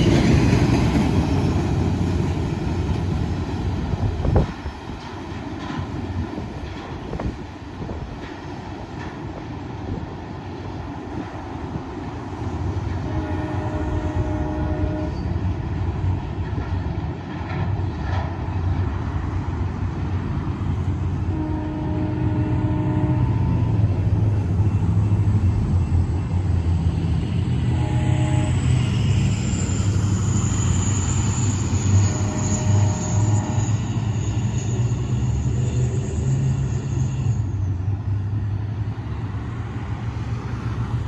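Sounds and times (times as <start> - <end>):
diesel locomotive engine rumble: 0.0 - 41.0
train horn: 13.0 - 15.4, 21.3 - 23.8, 27.6 - 29.0, 31.8 - 34.7.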